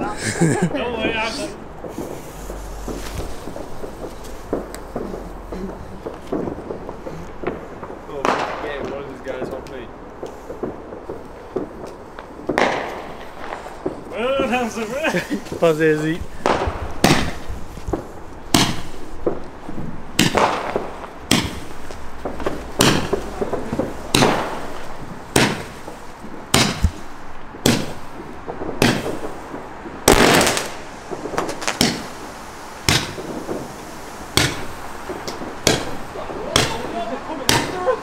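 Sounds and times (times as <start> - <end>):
fireworks bangs: 0.0 - 38.0.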